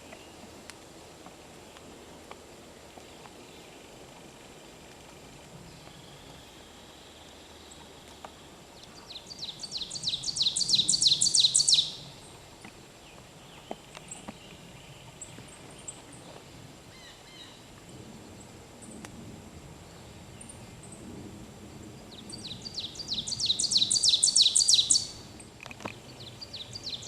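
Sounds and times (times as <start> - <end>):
faint high bird chirps: 8.8 - 12.3, 22.2 - 25.2
bird singing repeated phrases: 8.8 - 16.0, 22.0 - 27.0.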